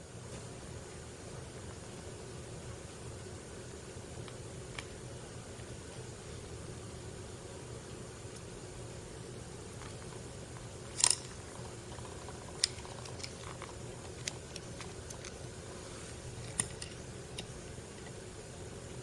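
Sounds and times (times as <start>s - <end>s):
small parts and tools clicking: 10.9s - 15.4s, 16.4s - 18.2s.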